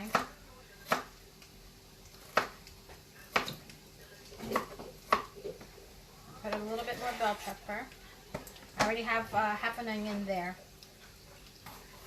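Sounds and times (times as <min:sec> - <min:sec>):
knife chopping on cutting board: 0:02.2 - 0:02.6, 0:03.3 - 0:03.6.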